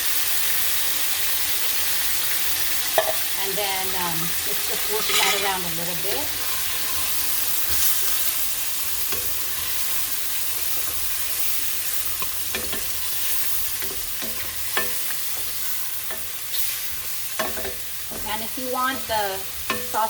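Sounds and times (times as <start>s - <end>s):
food sizzling in a pan: 0.0s - 20.0s
utensil clicking against pan: 12.2s - 13.0s, 13.8s - 16.6s, 19.6s - 20.0s.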